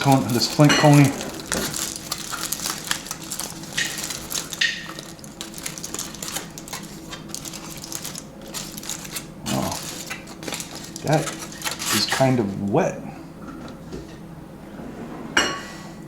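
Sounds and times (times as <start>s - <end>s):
foil crinkling: 0.0s - 12.7s.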